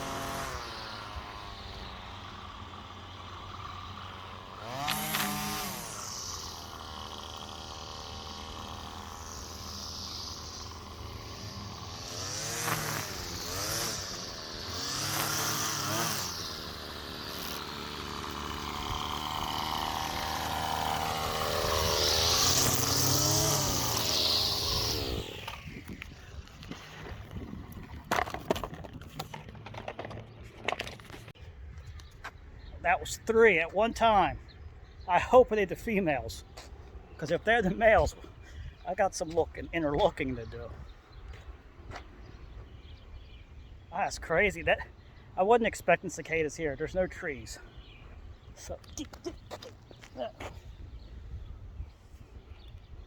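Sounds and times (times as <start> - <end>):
string trimmer engine revving: 0.0 - 28.8.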